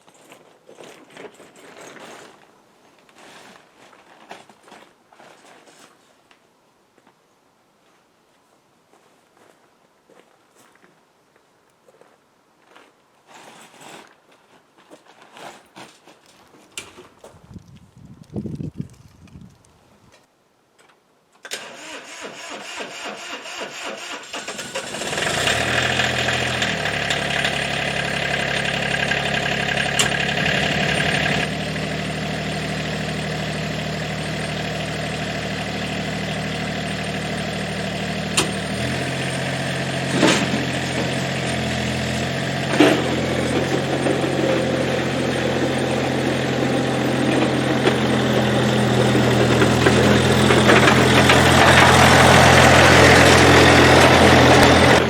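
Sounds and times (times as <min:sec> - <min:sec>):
diesel engine starting and idling: 0:21.5 - 0:55.0.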